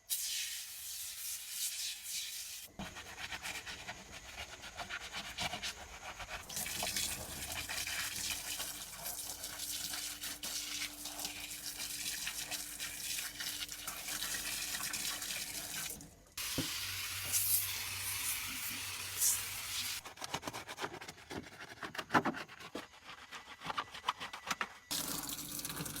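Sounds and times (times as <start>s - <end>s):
water hissing and splashing: 6.4s - 20.0s.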